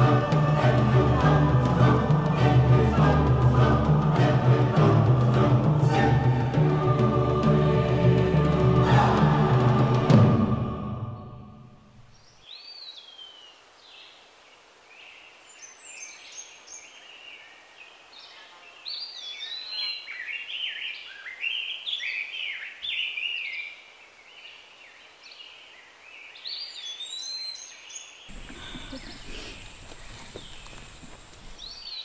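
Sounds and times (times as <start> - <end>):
faint outdoor hiss: 0.0 - 32.0
birds singing whistled phrases: 26.4 - 32.0.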